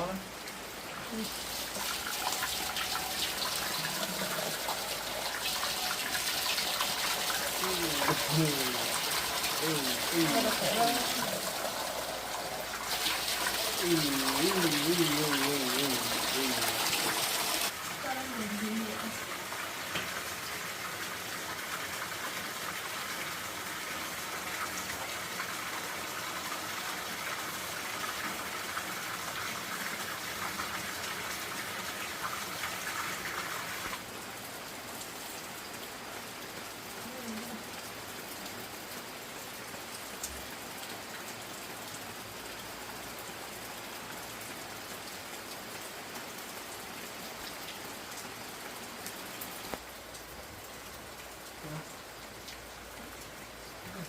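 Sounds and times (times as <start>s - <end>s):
hiss of running water: 0.0s - 34.0s.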